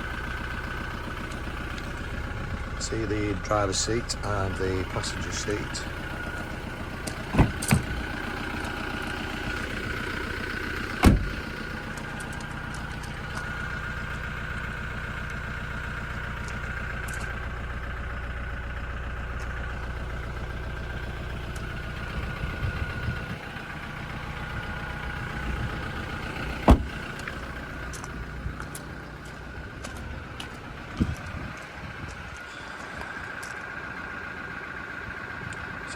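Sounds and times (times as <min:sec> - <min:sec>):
pickup diesel engine idling: 0:00.0 - 0:35.9.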